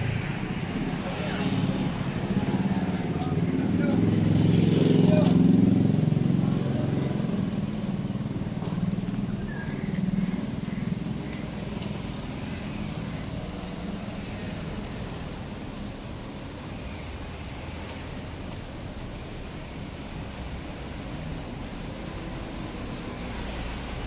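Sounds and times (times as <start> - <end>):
vehicle engine passing by: 0.0 - 9.3
street background noise: 0.0 - 24.0.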